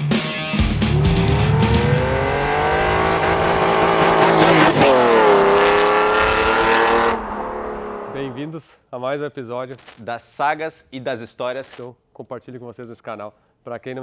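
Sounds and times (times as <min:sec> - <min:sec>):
car engine accelerating: 0:00.6 - 0:08.4.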